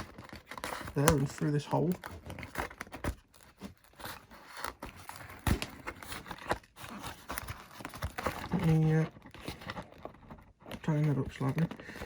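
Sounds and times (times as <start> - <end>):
cable scraping and rustling: 6.1 - 12.0.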